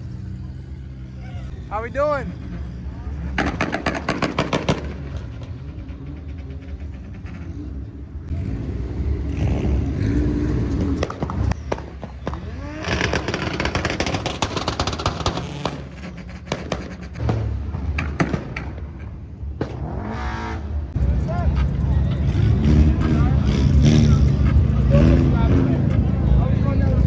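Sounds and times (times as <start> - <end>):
steady engine drone: 0.0 - 11.6, 12.9 - 27.0
rapid exhaust pops and bangs: 3.3 - 7.5, 10.5 - 27.0.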